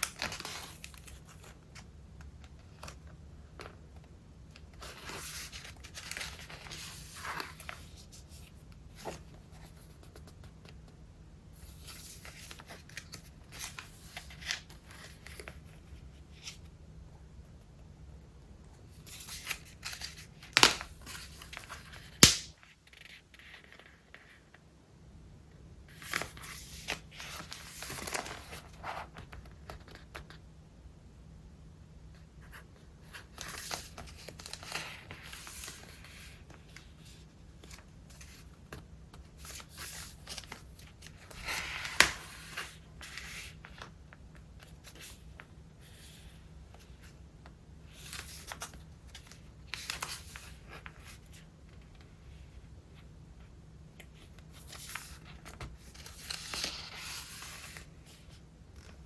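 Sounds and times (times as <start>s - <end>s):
notebook pages turning: 0.0s - 4.0s, 4.6s - 8.4s, 19.1s - 24.4s, 25.9s - 30.3s, 33.1s - 47.1s, 54.2s - 59.0s.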